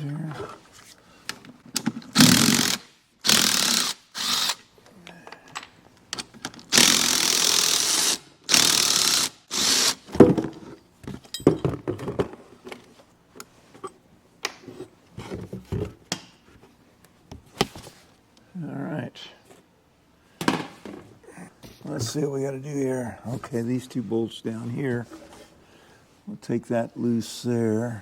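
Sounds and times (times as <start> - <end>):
clicks and knocks of parts handled: 4.8 - 6.7.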